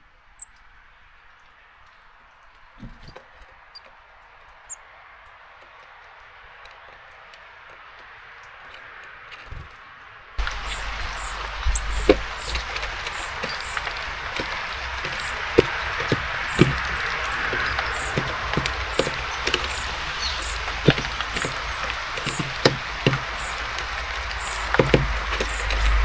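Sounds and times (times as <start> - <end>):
birds pecking seeds on a feeder: 10.4 - 26.0
rain hiss: 10.4 - 26.0.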